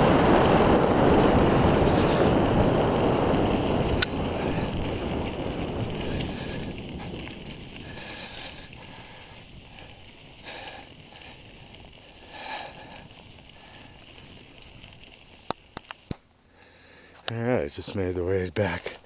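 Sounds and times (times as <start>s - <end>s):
bike rolling on dirt trail: 0.0s - 19.0s
rider sniffing: 1.7s - 2.6s, 3.9s - 14.6s.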